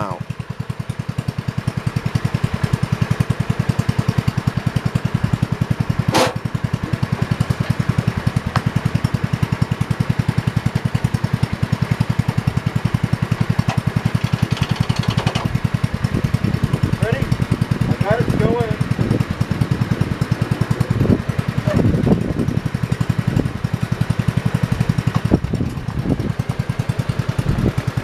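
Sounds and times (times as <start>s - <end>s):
garden tractor engine putter: 0.0s - 28.0s
sharp clack: 6.1s - 6.4s.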